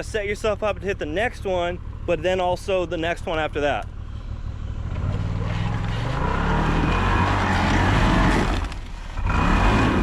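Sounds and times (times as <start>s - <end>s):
engine revving under load: 4.1s - 10.0s.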